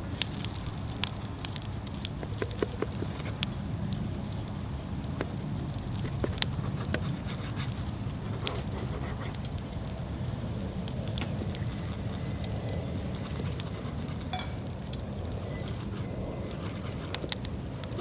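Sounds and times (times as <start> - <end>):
wood fire crackling: 0.0 - 18.0
sharp pops: 1.8 - 3.6.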